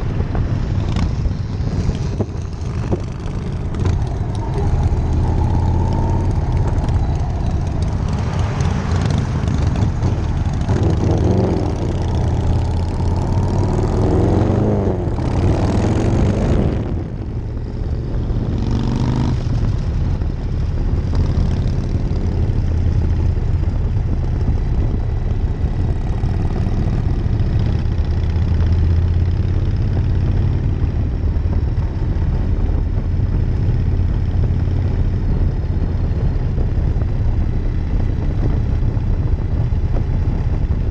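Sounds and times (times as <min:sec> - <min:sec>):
wind rushing: 0:00.0 - 0:24.8
motorcycle engine drone: 0:00.0 - 0:40.9.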